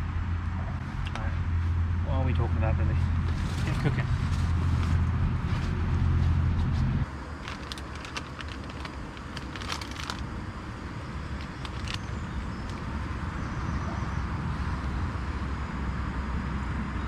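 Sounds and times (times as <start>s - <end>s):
road traffic rumble: 0.0s - 17.0s
small crackling clicks: 7.4s - 10.3s, 11.4s - 12.9s.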